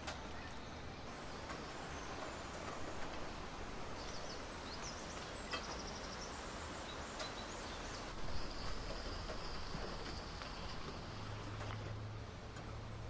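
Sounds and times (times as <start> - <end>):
steady background hiss: 0.1 - 12.0.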